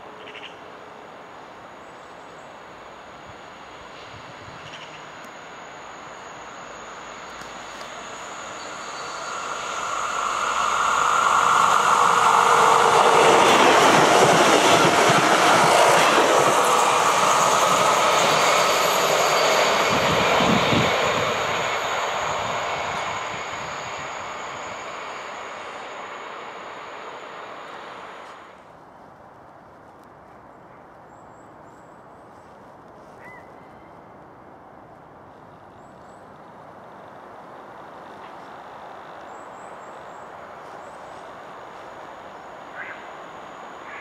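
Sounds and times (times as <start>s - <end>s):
train passing: 0.0s - 30.1s, 31.0s - 44.0s.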